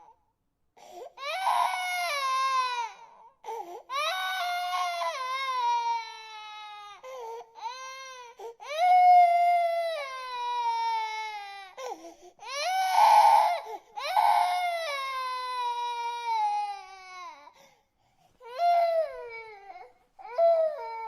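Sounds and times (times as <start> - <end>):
baby crying: 1.2 - 17.5, 18.4 - 21.0.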